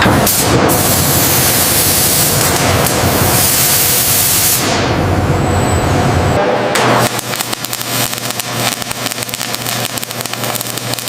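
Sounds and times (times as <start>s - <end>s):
loud steady hissing: 0.0s - 4.8s.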